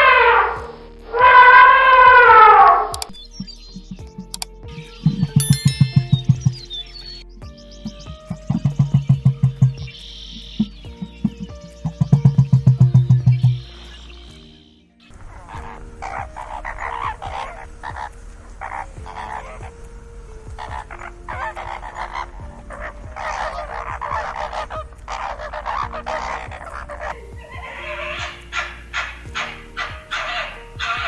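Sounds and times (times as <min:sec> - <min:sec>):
soft background music: 0:00.0 - 0:31.0.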